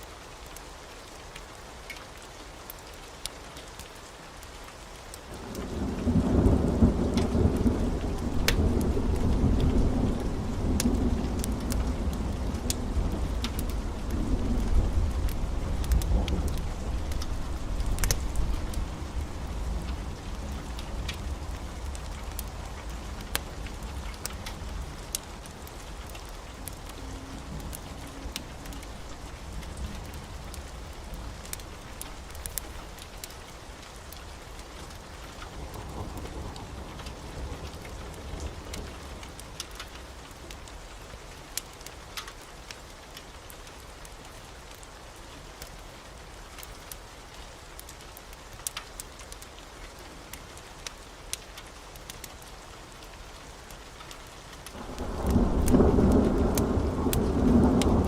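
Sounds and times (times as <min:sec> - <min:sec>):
heavy rain: 0:00.0 - 0:58.0
thunder rumbling: 0:05.4 - 0:33.4, 0:54.8 - 0:58.0
sharp crackles: 0:07.1 - 0:37.2, 0:47.8 - 0:58.0.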